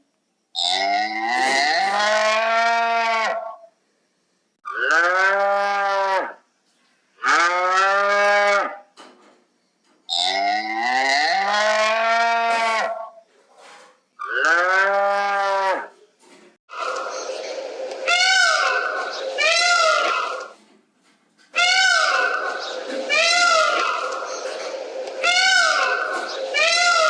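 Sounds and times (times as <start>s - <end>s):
cow mooing: 4.7s - 6.3s, 14.3s - 15.9s.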